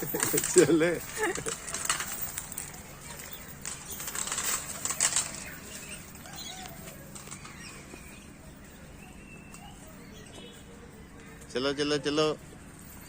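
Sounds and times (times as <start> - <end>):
loud fluttering rustle: 0.0 - 8.2
faint bird chirping: 2.2 - 13.0.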